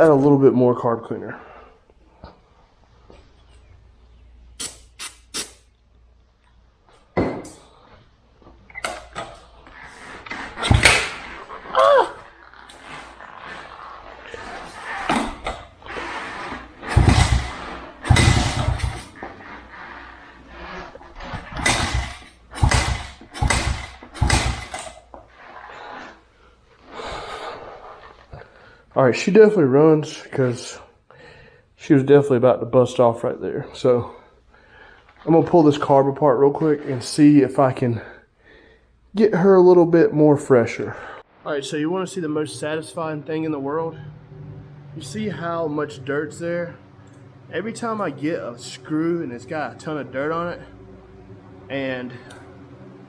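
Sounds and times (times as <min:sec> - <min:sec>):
motorbike being kick-started: 0:08.6 - 0:26.1, 0:44.0 - 0:53.0
engine firing briefly: 0:10.0 - 0:11.6, 0:14.3 - 0:25.0.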